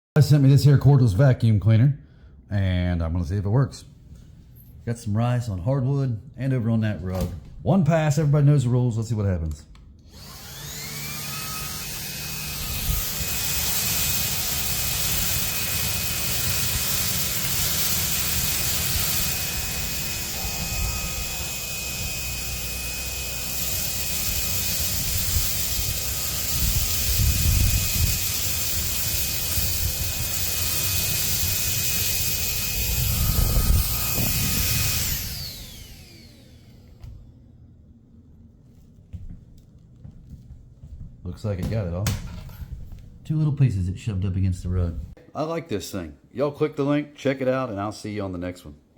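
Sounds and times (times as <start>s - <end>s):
vacuum cleaner motor whining: 10.1s - 37.3s.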